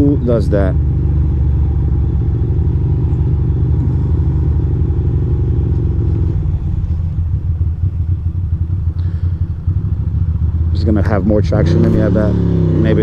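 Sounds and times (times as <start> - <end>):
motorcycle engine idling rumble: 0.0 - 13.0.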